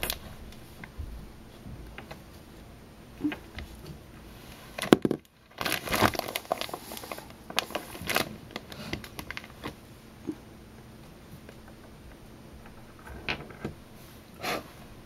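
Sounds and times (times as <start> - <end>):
hands rummaging and rustling: 3.3 - 9.8.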